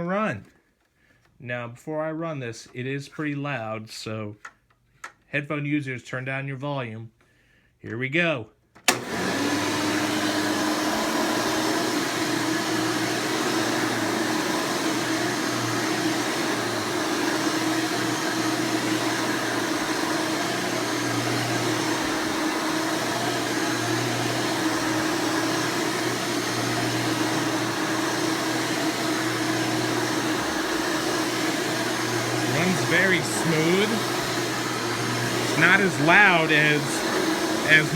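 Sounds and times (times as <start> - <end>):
upright vacuum cleaner running: 8.9 - 37.9.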